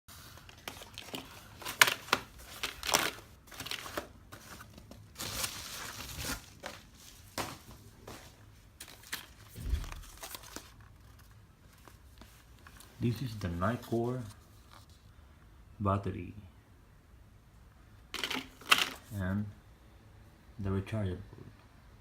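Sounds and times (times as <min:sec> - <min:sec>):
packaging crinkling and rustling: 0:00.3 - 0:15.1
dull thump: 0:09.6 - 0:10.4.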